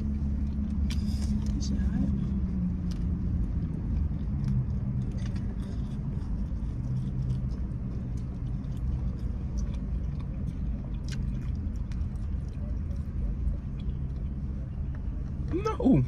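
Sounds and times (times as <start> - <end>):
car engine idling: 0.0 - 16.0
chewing: 0.2 - 15.5.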